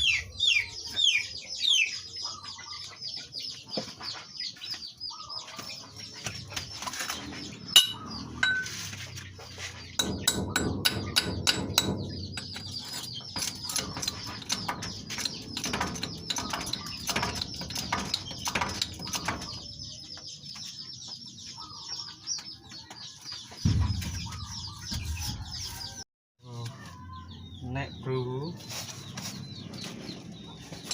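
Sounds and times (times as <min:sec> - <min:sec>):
chickens clucking: 0:00.0 - 0:11.2, 0:11.9 - 0:26.0
birds chirping: 0:00.0 - 0:30.9
metal tools knocking on spring: 0:07.8 - 0:08.7, 0:10.0 - 0:19.6.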